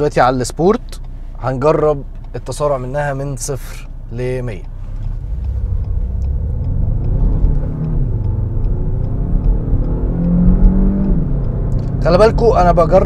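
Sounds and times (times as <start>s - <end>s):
low cabin rumble: 0.0s - 9.8s
car engine accelerating: 0.0s - 13.0s.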